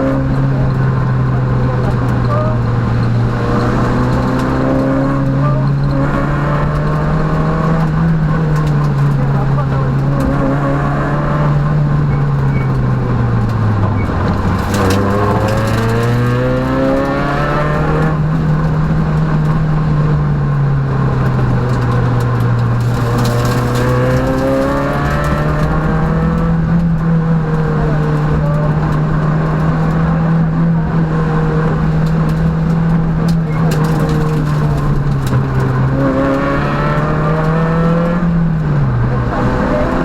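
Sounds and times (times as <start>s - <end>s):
rally car engine revving: 0.0s - 40.0s.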